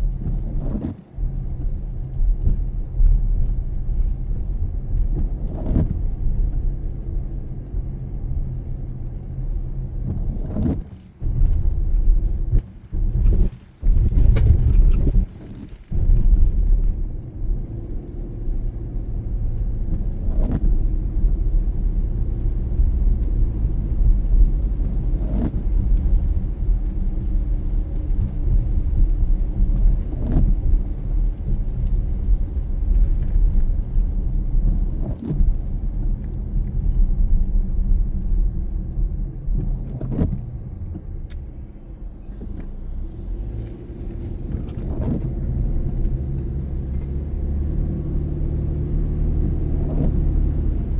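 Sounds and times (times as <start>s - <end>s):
car engine and road rumble: 0.0s - 50.9s
rain: 0.0s - 50.9s
windshield wipers swiping: 39.5s - 41.6s, 43.6s - 50.6s.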